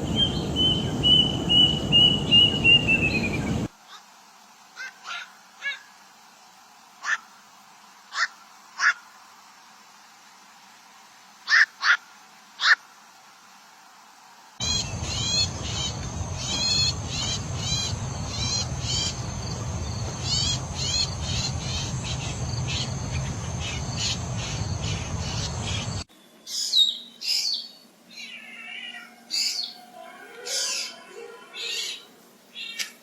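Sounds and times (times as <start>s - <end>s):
birds chirping rapidly: 0.0s - 3.7s, 14.6s - 29.8s
low rumble: 14.6s - 26.0s.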